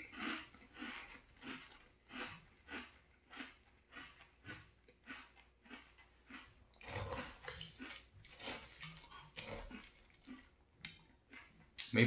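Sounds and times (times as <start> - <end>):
crunchy cereal chewing: 0.0 - 11.8.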